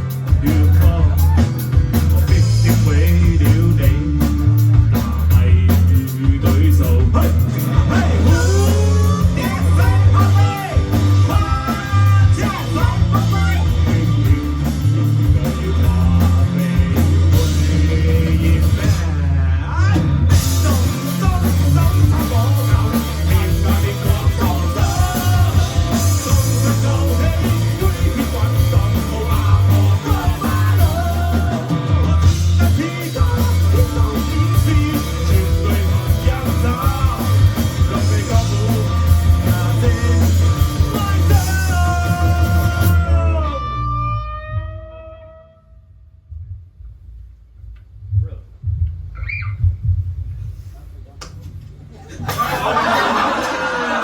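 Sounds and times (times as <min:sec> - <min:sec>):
rock band playing live: 0:00.0 - 0:45.4
shouted vocals: 0:00.7 - 0:02.3.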